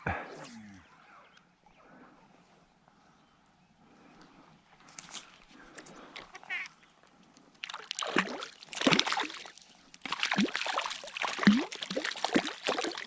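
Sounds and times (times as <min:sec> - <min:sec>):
fish thrashing water splashing: 0:07.6 - 0:13.0.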